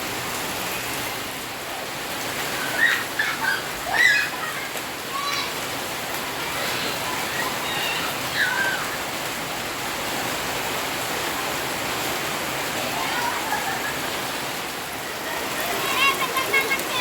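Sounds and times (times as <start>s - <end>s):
heavy rain pouring: 0.0s - 17.0s
children calling out: 2.4s - 9.3s, 12.7s - 17.0s.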